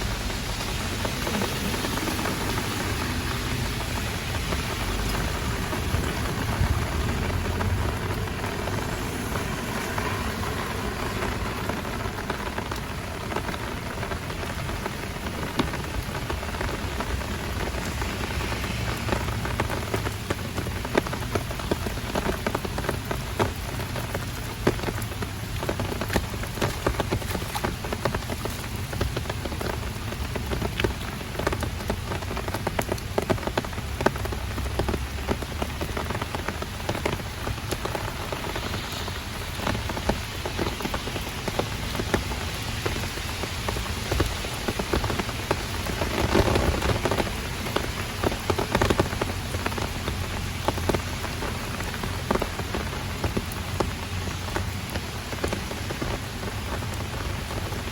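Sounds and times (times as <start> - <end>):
close raindrop hits: 0.0 - 57.9
heavy rain: 0.0 - 57.9.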